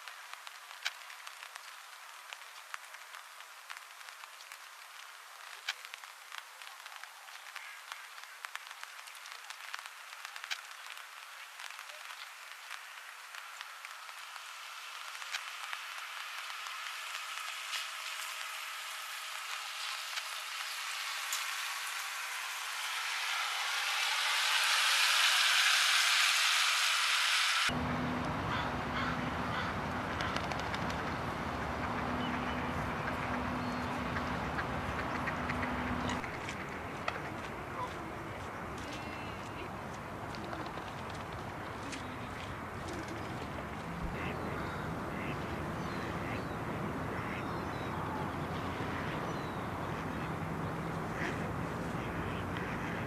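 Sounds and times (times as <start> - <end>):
steady low hum: 27.6 - 53.0
background rumble: 27.7 - 53.0
ducks calling softly: 28.4 - 53.0.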